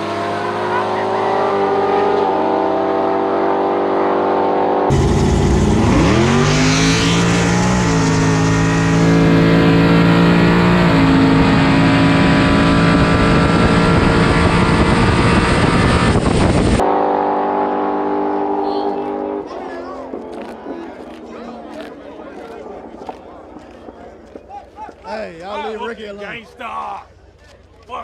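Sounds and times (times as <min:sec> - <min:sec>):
car engine at full throttle: 0:00.0 - 0:19.6.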